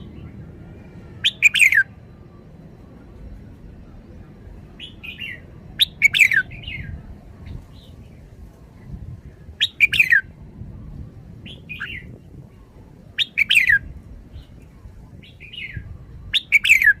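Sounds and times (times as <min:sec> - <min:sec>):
faint low rumble: 0:00.0 - 0:17.0
bird whistled phrases: 0:01.2 - 0:01.9, 0:04.8 - 0:07.0, 0:09.6 - 0:10.3, 0:11.5 - 0:12.1, 0:13.2 - 0:14.5, 0:15.2 - 0:17.0
soft bird calls: 0:04.8 - 0:08.4, 0:09.5 - 0:10.3, 0:13.2 - 0:17.0.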